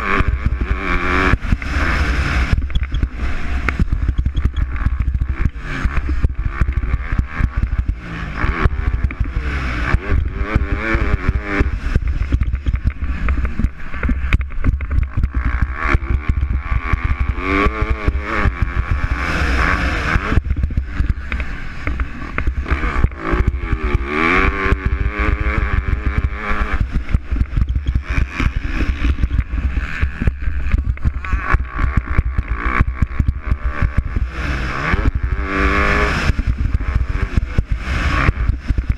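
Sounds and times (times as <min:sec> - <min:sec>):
motocross bike engines revving: 0:00.0 - 0:38.9.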